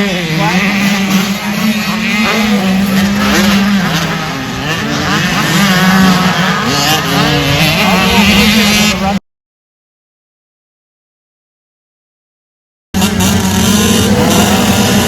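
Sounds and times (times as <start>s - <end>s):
dirt bike engine revving: 0.0s - 9.2s, 13.0s - 15.0s.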